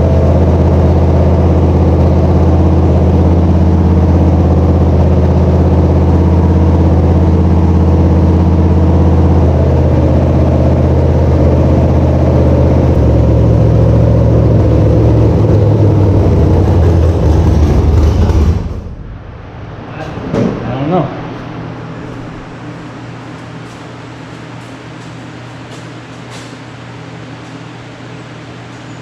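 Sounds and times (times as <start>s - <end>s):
engine running: 0.0s - 29.0s.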